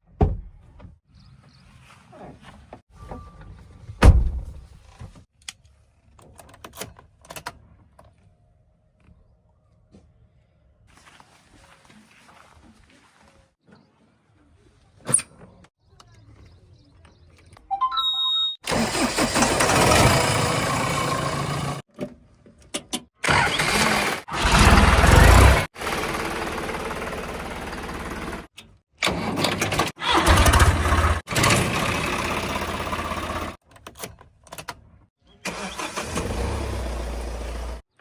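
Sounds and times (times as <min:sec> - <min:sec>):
heavy diesel engines revving: 0:18.7 - 0:21.8, 0:23.3 - 0:25.8, 0:35.5 - 0:37.8.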